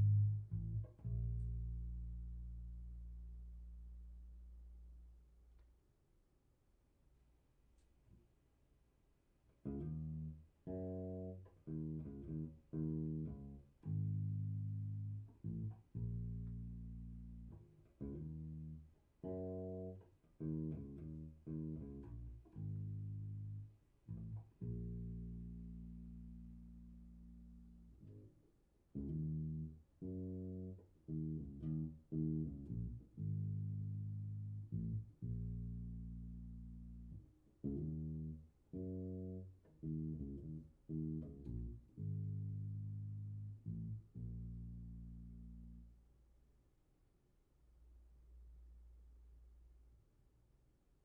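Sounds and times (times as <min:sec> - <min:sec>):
electric bass guitar plucked notes: 0:00.0 - 0:05.1, 0:09.7 - 0:28.3, 0:29.0 - 0:46.0.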